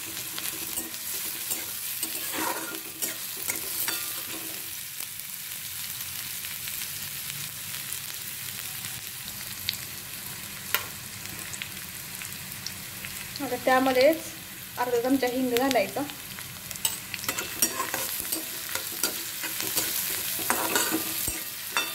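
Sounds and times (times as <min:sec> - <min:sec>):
spatula scraping and stirring: 0:00.0 - 0:04.7, 0:16.8 - 0:21.9
vegetables sizzling in oil: 0:00.0 - 0:21.9.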